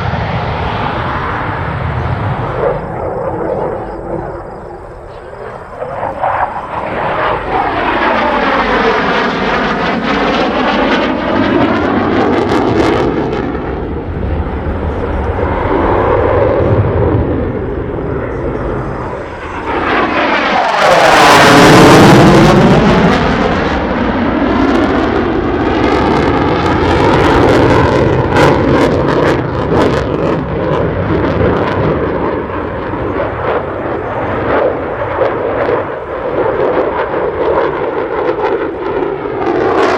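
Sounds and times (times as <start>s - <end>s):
fighter jet flying overhead: 0.0s - 39.9s.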